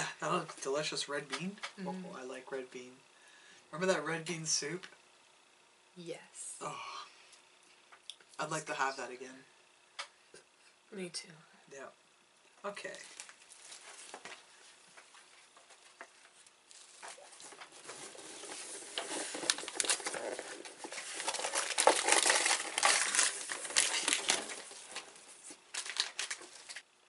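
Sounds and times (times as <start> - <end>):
plastic packaging crinkling: 16.5 - 27.0.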